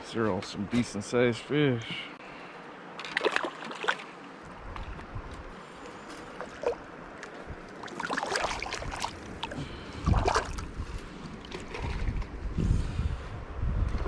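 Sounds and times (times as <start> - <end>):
wind buffeting microphone: 4.5 - 5.6, 8.5 - 14.0
river water rushing: 6.3 - 11.8.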